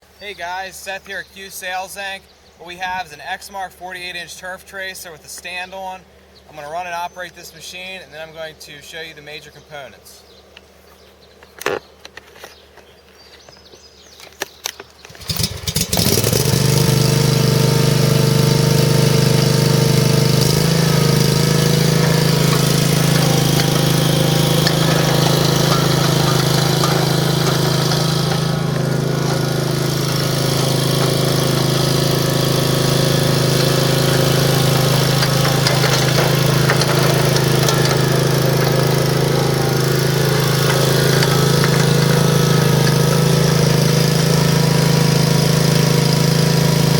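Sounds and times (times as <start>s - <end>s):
clicks before engine start: 14.4s - 16.8s, 20.3s - 45.0s
mower engine starting and running: 15.0s - 46.9s.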